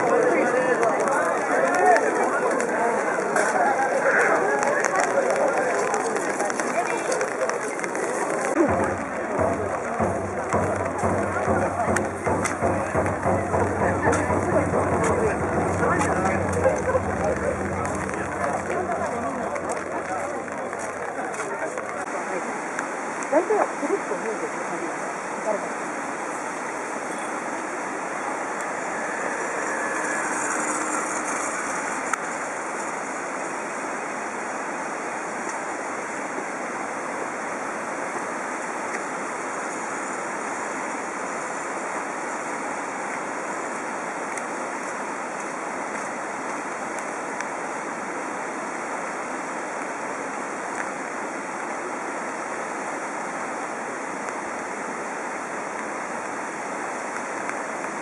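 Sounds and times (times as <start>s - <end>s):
steady rushing noise: 8.4s - 23.2s, 25.0s - 35.1s.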